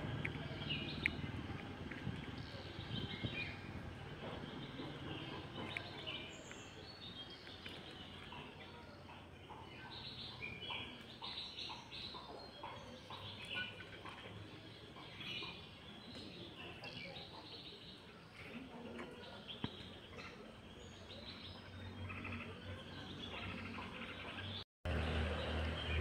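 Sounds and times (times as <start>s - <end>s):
low outdoor rumble: 0.0s - 11.1s
birds chirping and calling: 0.0s - 26.0s.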